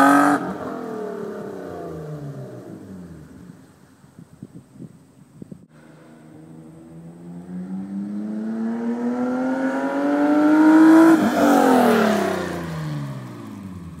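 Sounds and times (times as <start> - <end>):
car engine accelerating past: 5.8 - 14.0.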